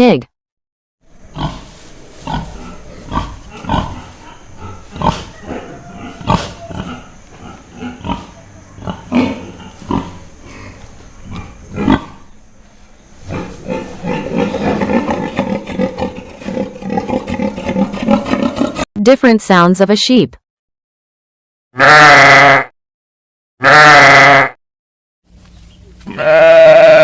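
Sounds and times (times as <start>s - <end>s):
pigs grunting: 1.3s - 12.4s, 13.2s - 18.9s, 26.0s - 27.0s.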